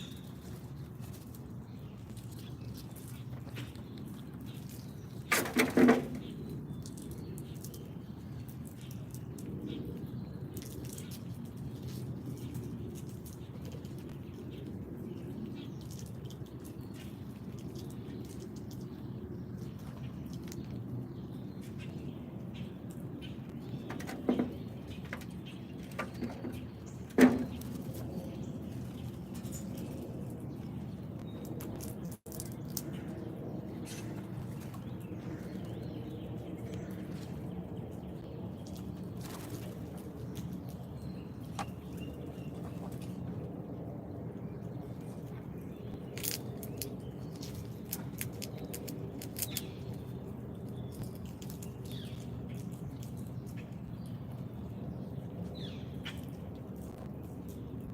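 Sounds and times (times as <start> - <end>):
low background rumble: 0.0 - 57.9
animals tapping at feeder: 23.5 - 30.0.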